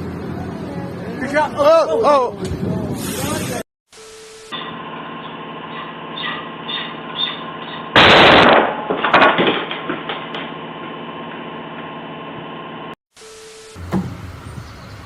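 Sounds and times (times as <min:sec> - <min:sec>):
sharp cracks and rattles: 0:07.6 - 0:11.9.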